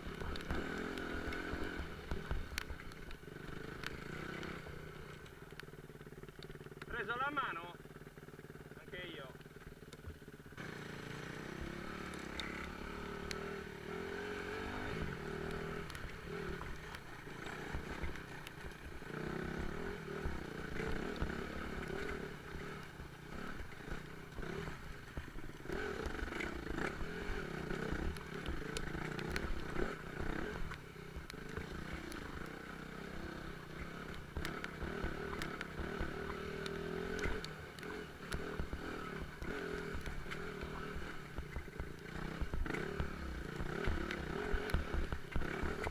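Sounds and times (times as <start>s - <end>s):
sharp clicks and clatter: 0.0s - 7.5s, 9.4s - 10.4s
motorcycle engine revving: 0.0s - 45.9s.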